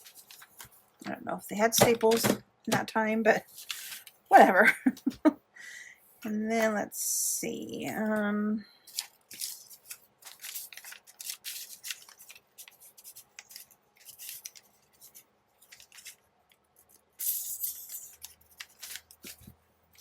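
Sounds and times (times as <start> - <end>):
paper rustling: 0.0 - 0.8, 3.5 - 4.2, 8.9 - 20.0.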